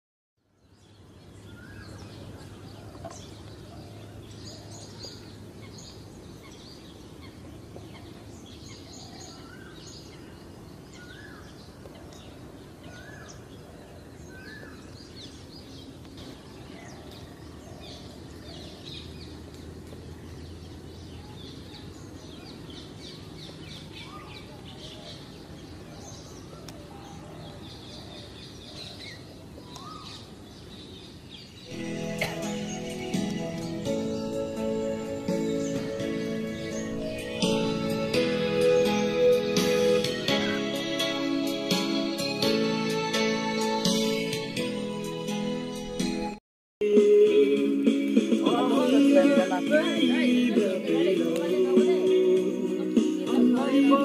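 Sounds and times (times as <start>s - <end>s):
birds singing and calling: 0.4s - 42.5s.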